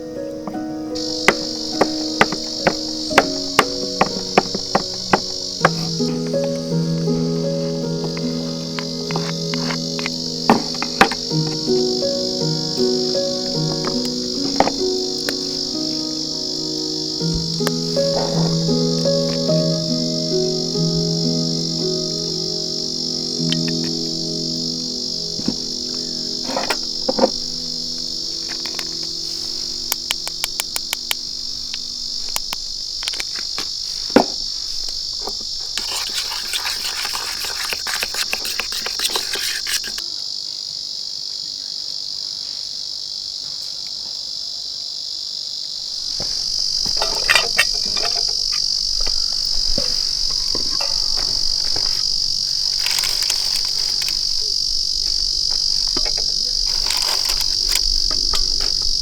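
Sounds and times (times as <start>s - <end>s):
crickets chirping: 0.0s - 59.0s
light clicks and crackles: 46.9s - 59.0s.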